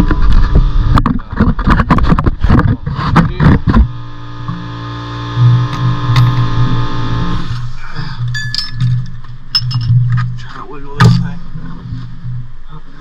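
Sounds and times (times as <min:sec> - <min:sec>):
steady droning hum: 0:00.1 - 0:13.0
metal parts knocking and clanking: 0:05.7 - 0:06.6, 0:08.2 - 0:11.4.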